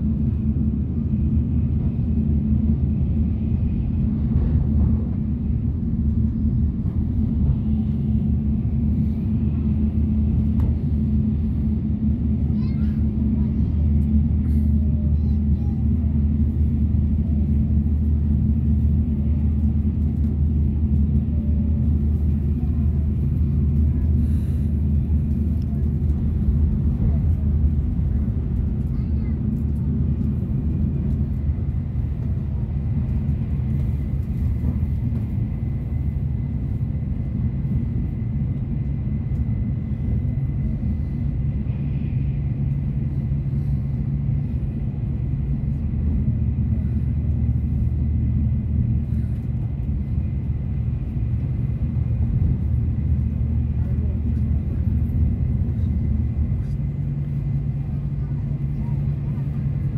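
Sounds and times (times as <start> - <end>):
train rumble inside cabin: 0.0 - 59.9.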